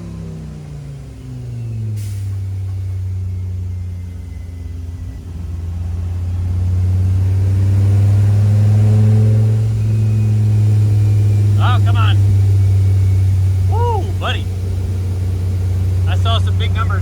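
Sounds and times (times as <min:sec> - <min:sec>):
race car engine revving: 0:05.5 - 0:17.0.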